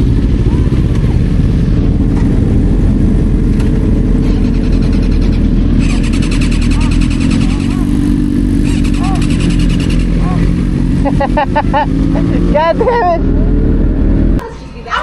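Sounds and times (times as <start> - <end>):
motorcycle engines rumbling: 0.0 - 15.0
fast fine rattling: 4.2 - 7.9.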